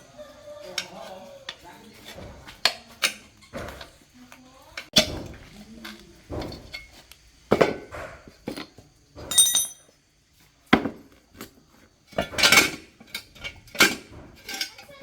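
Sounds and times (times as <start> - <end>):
hard objects clinking and knocking: 6.3 - 9.9.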